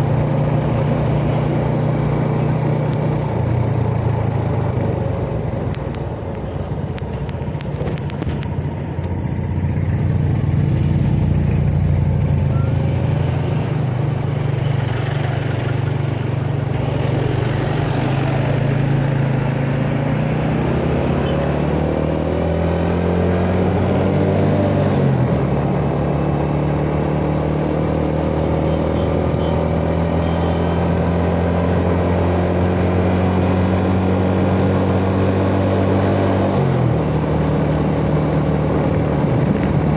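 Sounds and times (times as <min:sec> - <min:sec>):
motorcycle engine running: 0:00.0 - 0:20.2.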